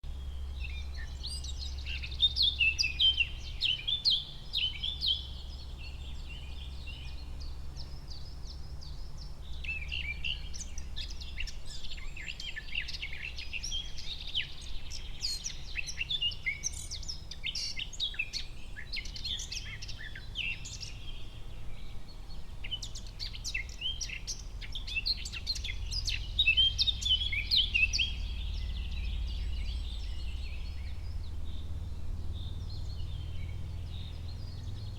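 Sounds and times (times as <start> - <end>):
birds singing and chirping: 0.1 - 34.9
steady low rumble: 24.3 - 34.9.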